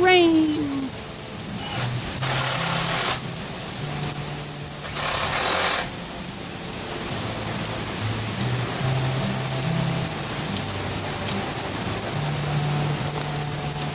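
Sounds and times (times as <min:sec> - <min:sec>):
heavy rain: 0:00.0 - 0:13.9
background tune with low bass: 0:01.0 - 0:13.9.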